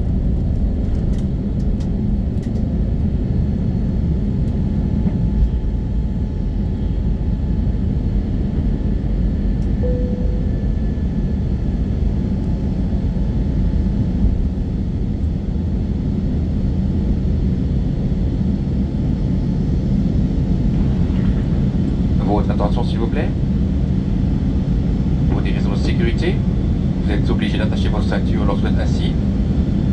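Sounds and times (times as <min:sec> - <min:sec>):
aircraft cabin rumble and rushing air: 0:00.0 - 0:29.9
short tone: 0:09.8 - 0:11.3.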